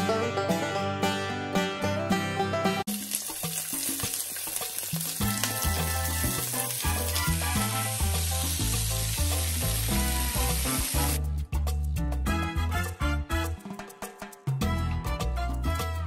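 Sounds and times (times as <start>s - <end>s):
razor clams sizzling in a pan: 2.9s - 11.2s
background music with bass line: 5.1s - 16.0s.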